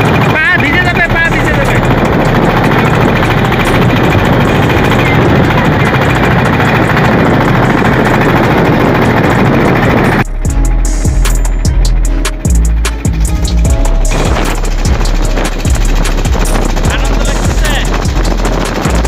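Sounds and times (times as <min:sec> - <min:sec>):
boat engine running: 0:00.0 - 0:19.0
music: 0:00.1 - 0:19.0.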